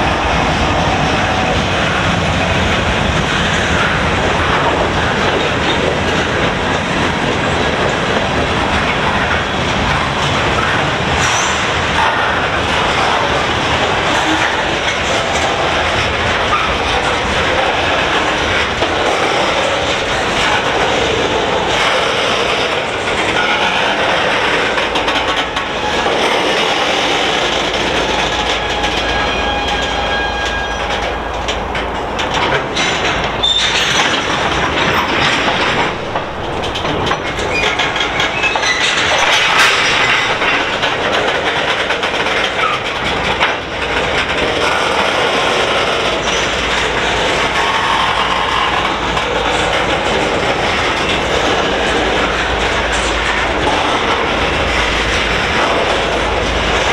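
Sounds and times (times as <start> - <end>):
freight train rolling past: 0.0 - 56.9
wheels clicking over rail joints: 0.0 - 56.9
faint wheel squeal: 28.6 - 31.0.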